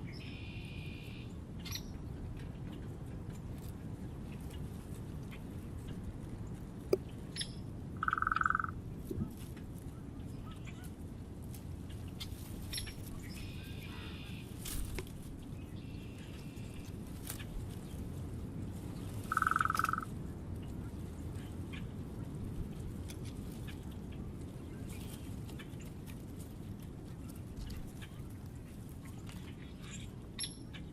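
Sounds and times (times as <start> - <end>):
low outdoor background: 0.0 - 30.9
mid-pitched bird calls: 7.3 - 8.8, 12.2 - 14.6, 19.3 - 20.1
high bird chirps: 7.4 - 8.8, 19.3 - 20.0.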